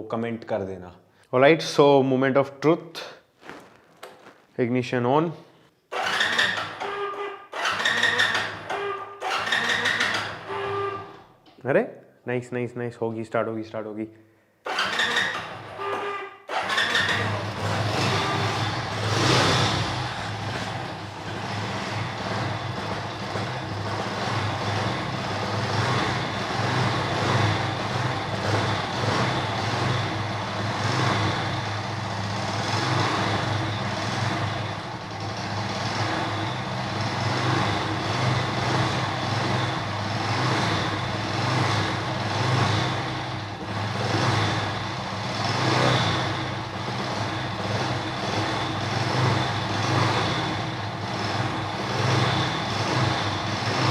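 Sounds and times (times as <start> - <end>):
man talking: 0.0 - 3.2, 4.6 - 5.5, 11.6 - 14.2
motorcycle engine running: 15.5 - 53.9.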